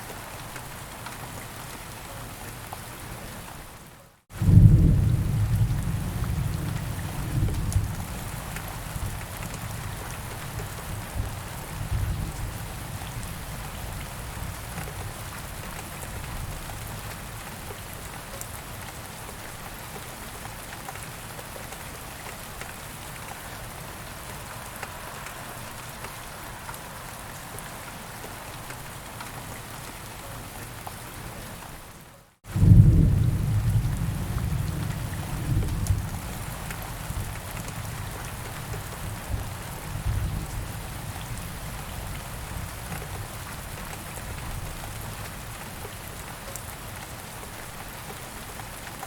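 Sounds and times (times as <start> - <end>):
steady rain falling: 0.0 - 49.0
thunder rumbling: 32.5 - 40.8.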